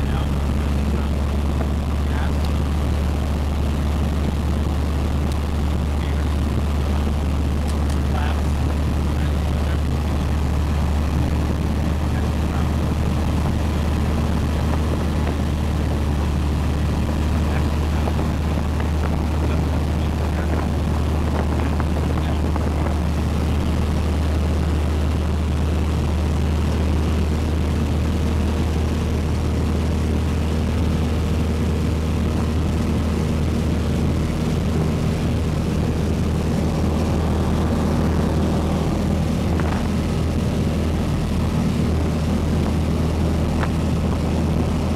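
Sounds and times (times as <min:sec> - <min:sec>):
propeller plane engine drone: 0:00.0 - 0:44.9.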